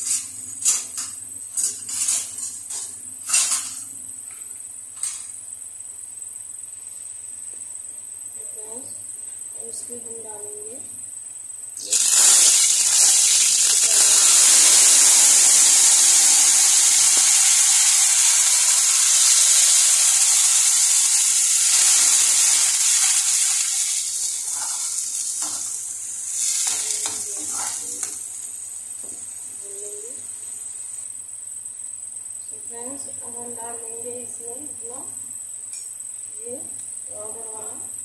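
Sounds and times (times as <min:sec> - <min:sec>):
paste sizzling in hot oil: 0:11.8 - 0:29.4.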